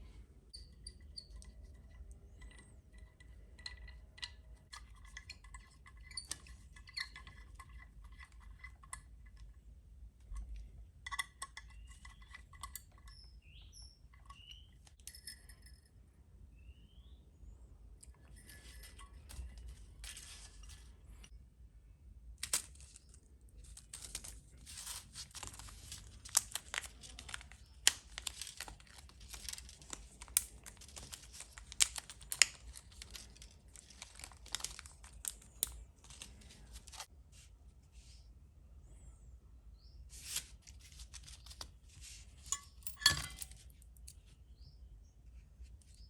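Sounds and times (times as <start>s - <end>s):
plastic packaging crinkling: 22.4s - 37.1s
small plastic parts clicking: 25.5s - 37.1s.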